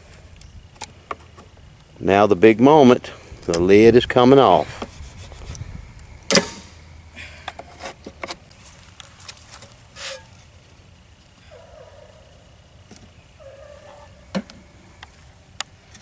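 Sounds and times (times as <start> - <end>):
brief scrape: 10.0 - 10.3.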